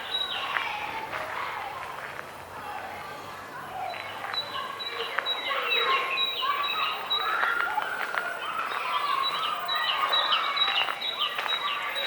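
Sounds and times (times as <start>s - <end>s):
small birds chirping: 0.0s - 1.0s, 3.2s - 12.0s.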